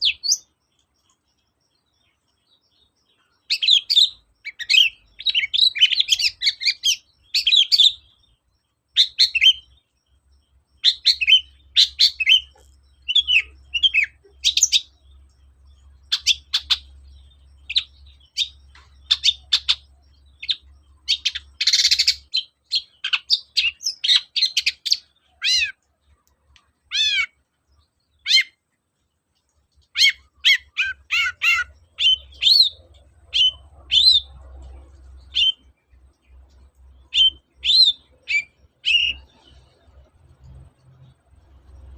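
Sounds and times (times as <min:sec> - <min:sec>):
bird song chirps and whistles: 0:00.0 - 0:25.8, 0:26.9 - 0:28.6, 0:29.9 - 0:34.6, 0:35.2 - 0:35.8, 0:37.0 - 0:39.8
harsh rasping bird call: 0:26.9 - 0:27.4, 0:30.0 - 0:32.7.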